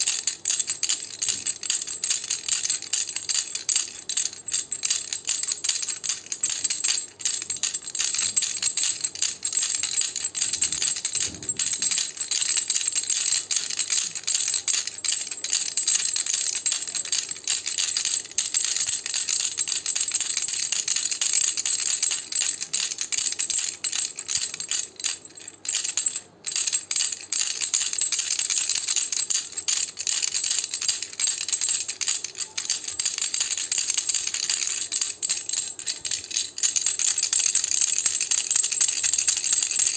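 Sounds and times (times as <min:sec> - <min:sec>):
baby rattle shaken: 0:00.0 - 0:39.9.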